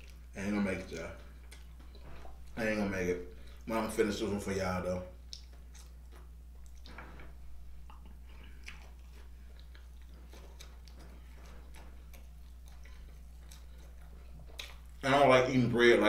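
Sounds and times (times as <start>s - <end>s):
person chewing: 0.0s - 2.6s, 5.1s - 15.1s
steady low hum: 0.0s - 16.0s.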